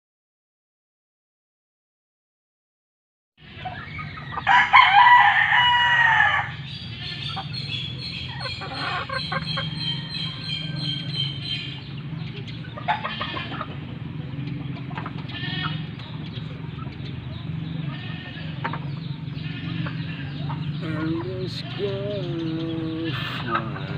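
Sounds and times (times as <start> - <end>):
fowl calls: 3.4 - 11.8, 12.7 - 13.9, 14.8 - 15.9, 21.5 - 23.9
rooster crowing: 4.4 - 6.6, 8.8 - 11.4.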